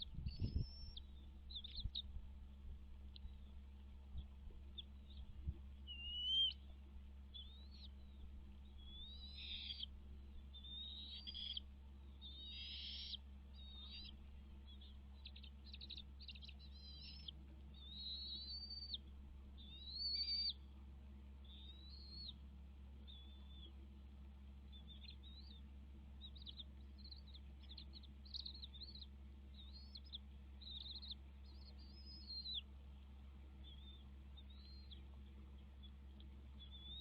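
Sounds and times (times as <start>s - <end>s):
faint low hum: 0.0s - 37.0s
bird chirping and whistling: 0.2s - 1.9s, 5.9s - 6.6s, 8.8s - 9.9s, 10.6s - 11.6s, 12.2s - 14.1s, 16.4s - 19.0s, 19.6s - 20.6s, 29.6s - 32.6s, 33.6s - 35.0s.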